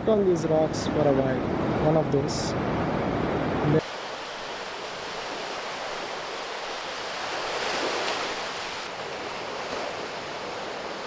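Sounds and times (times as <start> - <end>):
waves washing over rocks: 3.8 - 11.0.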